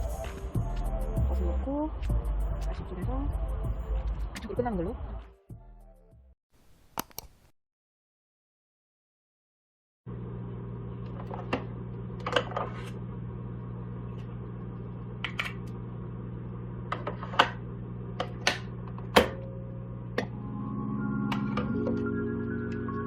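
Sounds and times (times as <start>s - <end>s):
music with organ-like notes: 0.0s - 1.6s, 20.3s - 23.0s.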